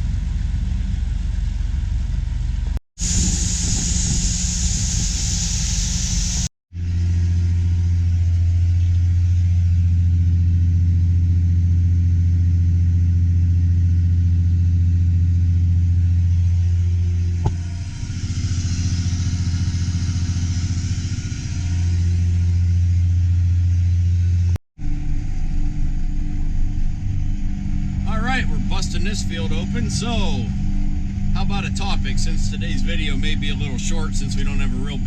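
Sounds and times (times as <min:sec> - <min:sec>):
tractor engine droning: 0:00.0 - 0:35.0
high hiss: 0:03.0 - 0:06.5.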